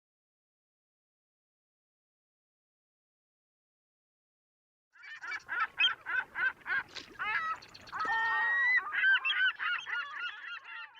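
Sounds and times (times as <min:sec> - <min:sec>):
birds honking: 0:05.0 - 0:10.9.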